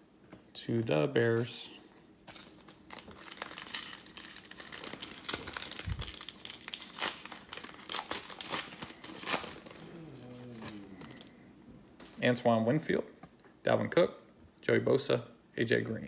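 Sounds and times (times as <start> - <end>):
foil wrapper tearing and crinkling: 2.3 - 11.3.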